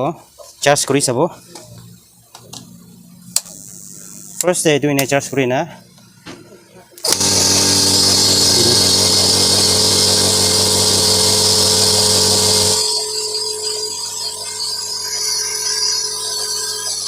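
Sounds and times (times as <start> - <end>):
air compressor motor hum with hiss: 7.0 - 17.0.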